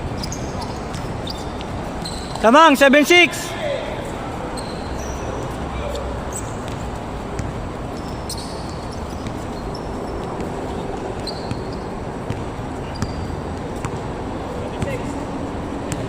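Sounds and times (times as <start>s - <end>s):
steady background noise: 0.0s - 16.0s
short high squeaks: 0.2s - 2.4s, 4.4s - 6.7s, 7.9s - 10.3s, 11.2s - 12.0s, 12.8s - 13.4s
basketball bouncing: 6.6s - 8.1s, 11.2s - 14.0s.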